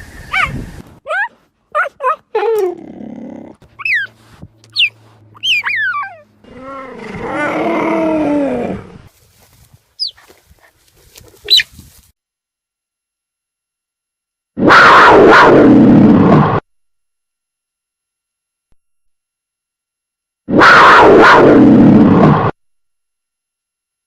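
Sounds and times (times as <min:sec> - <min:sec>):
tiger cries: 0:03.8 - 0:08.9
tiger roar: 0:06.4 - 0:09.1.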